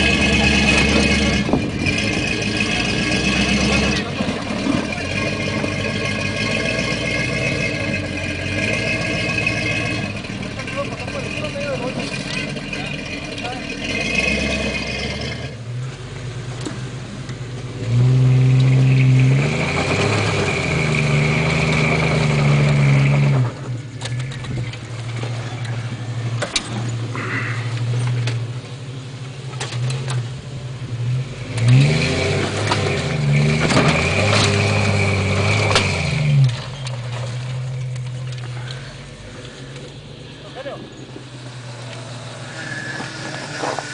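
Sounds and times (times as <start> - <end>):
off-road engine revving: 0.0 - 43.9
high whine: 32.6 - 43.9.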